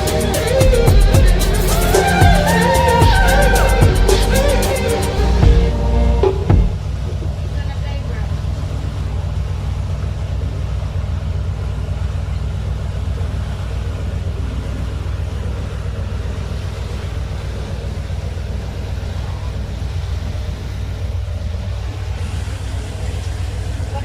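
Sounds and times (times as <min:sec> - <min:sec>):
ferry engines rumbling: 0:00.0 - 0:24.0
water against hull: 0:05.4 - 0:24.0.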